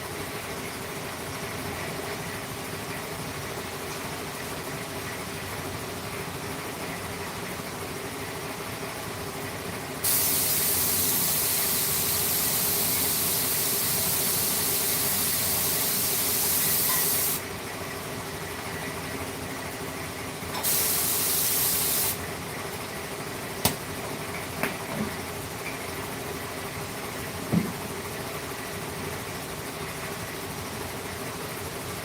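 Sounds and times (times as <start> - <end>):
compressed air hissing from nozzle: 10.0 - 17.4, 20.6 - 22.2.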